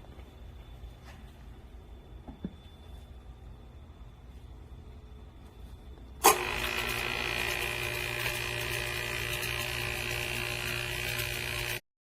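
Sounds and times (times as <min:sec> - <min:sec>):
food waste disposer motor running: 0:06.2 - 0:11.8.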